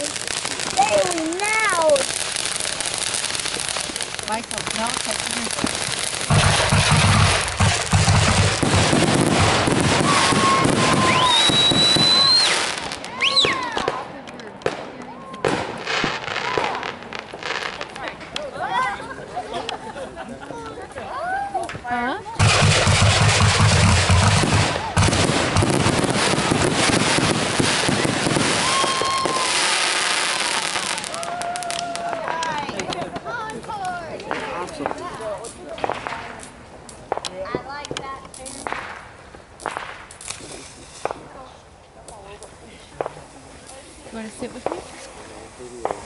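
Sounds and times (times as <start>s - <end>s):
firework whistles: 0.0s - 13.8s, 22.4s - 31.9s, 39.7s - 41.2s
fireworks booms: 0.0s - 18.4s, 22.4s - 33.6s, 34.2s - 36.5s, 37.1s - 41.5s, 42.4s - 46.0s
fireworks crackling: 0.0s - 46.0s.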